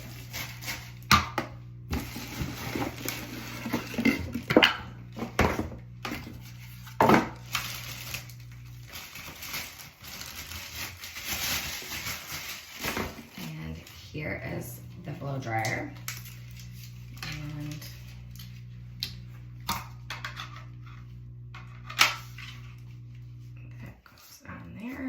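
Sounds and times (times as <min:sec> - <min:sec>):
packaging rustling and crinkling: 0:00.0 - 0:01.1, 0:02.0 - 0:04.0, 0:06.1 - 0:14.0, 0:16.0 - 0:18.8
low steady hum: 0:00.0 - 0:25.0.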